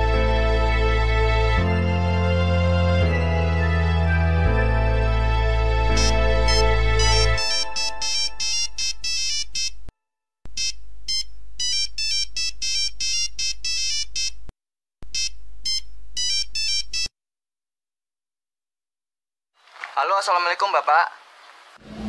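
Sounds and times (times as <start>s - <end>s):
background music: 0.0s - 9.0s
phone ringtone melody: 6.0s - 9.8s, 10.6s - 14.4s, 15.2s - 17.1s.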